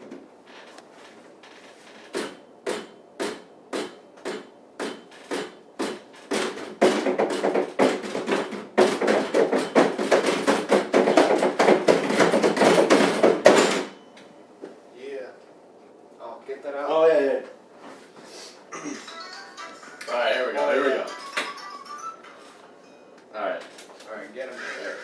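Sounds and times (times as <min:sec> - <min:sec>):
sharp knocks: 0:02.1 - 0:14.0.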